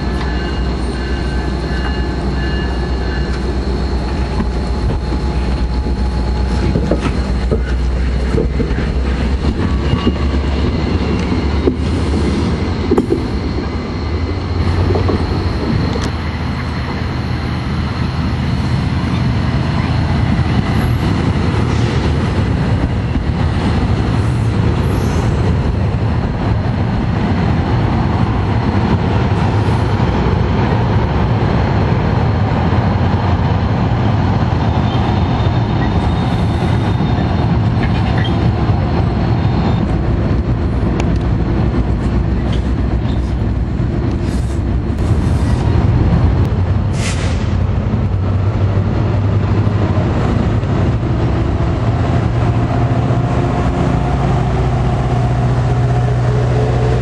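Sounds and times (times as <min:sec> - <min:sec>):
train passing at speed: 0:00.0 - 0:57.0.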